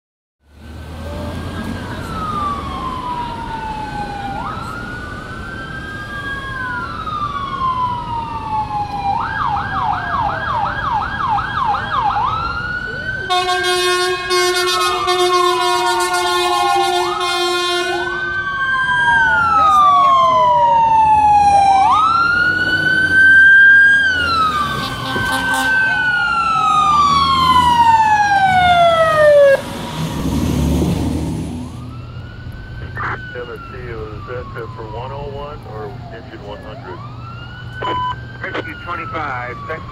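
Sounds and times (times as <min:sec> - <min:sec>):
truck engines running: 0:00.5 - 0:39.9
emergency sirens wailing: 0:00.6 - 0:39.9
blaring horn: 0:13.3 - 0:18.4, 0:24.6 - 0:26.0.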